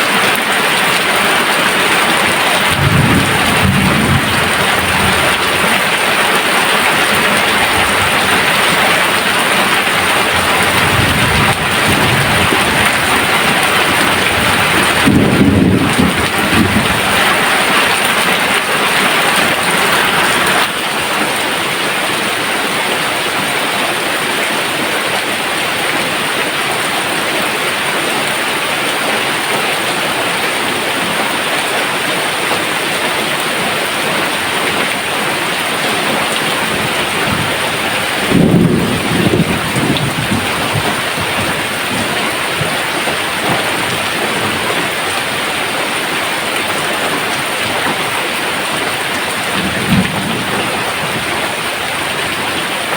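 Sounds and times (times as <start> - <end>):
heavy rain hissing: 0.0 - 52.9
thunder rumbling: 1.7 - 20.8, 35.7 - 45.1, 49.0 - 52.9.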